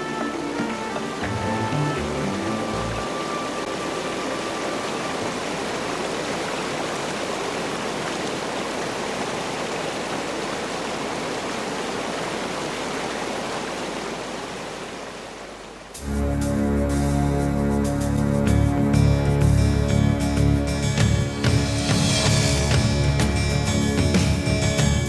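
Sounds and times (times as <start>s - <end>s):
music: 0.0s - 5.2s, 16.0s - 25.0s
rushing water roar: 0.0s - 25.0s.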